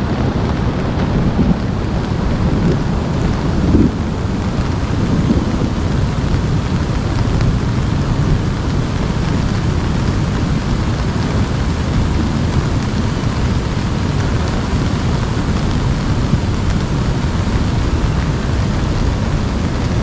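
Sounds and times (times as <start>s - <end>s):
deep continuous rumble: 0.0s - 20.0s
steady rain: 0.0s - 20.0s.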